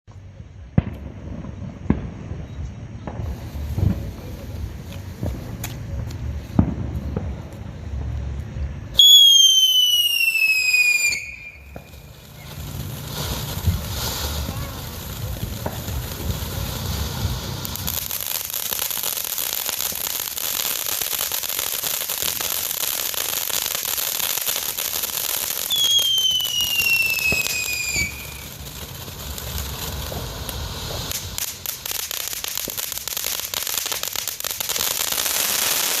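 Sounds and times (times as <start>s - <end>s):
firework hissing: 0.8s - 36.0s
falling whistle: 25.7s - 28.3s.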